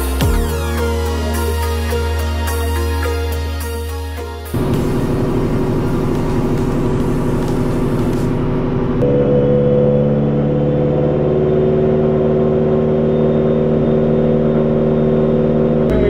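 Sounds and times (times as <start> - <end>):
turbocharged engine running steadily: 4.5 - 16.0.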